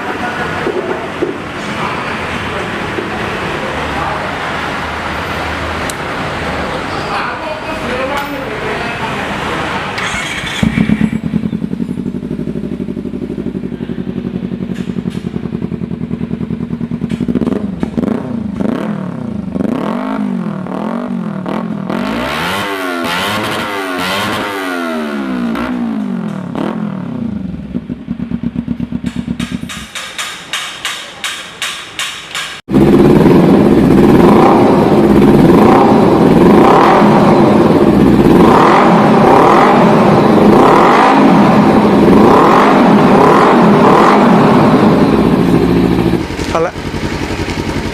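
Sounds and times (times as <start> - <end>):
motorcycle engine revving: 0.0 - 30.4, 32.5 - 47.9
engine pulsing steadily: 9.0 - 29.9, 32.7 - 47.9.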